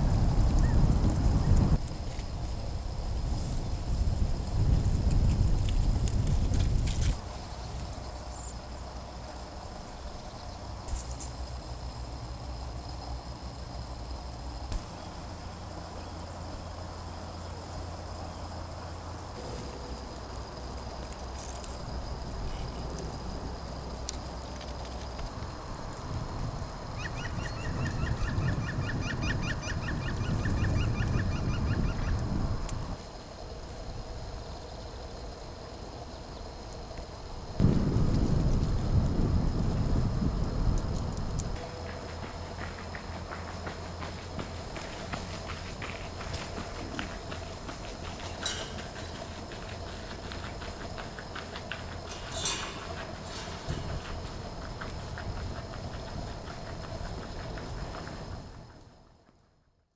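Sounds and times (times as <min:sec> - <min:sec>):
steady low rumble: 0:37.6 - 0:43.4.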